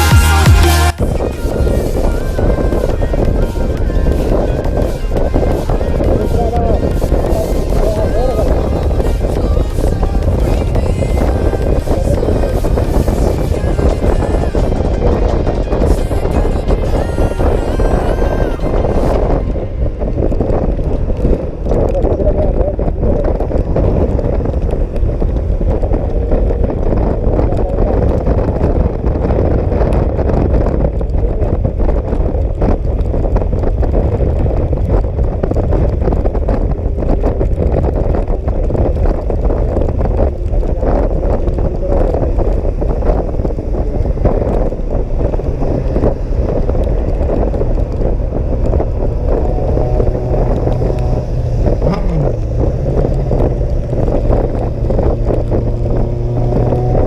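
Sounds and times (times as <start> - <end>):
motor scooter engine drone: 0.0 - 57.0
wind buffeting on microphone: 0.0 - 57.0.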